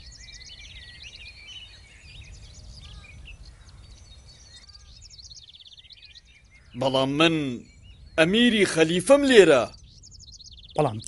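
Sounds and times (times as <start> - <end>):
small birds chirping and trilling: 0.0 - 11.0.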